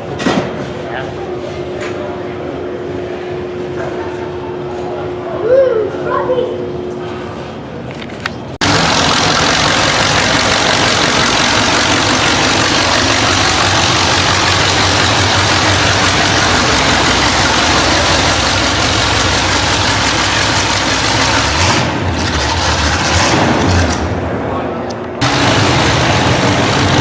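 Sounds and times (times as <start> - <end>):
loud car engine rumbling: 8.6 - 27.0.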